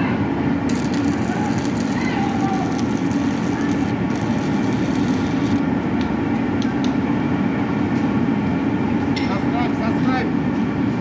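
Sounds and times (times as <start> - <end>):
low mechanical rumble: 0.0 - 11.0
high crackling hiss: 0.7 - 5.6.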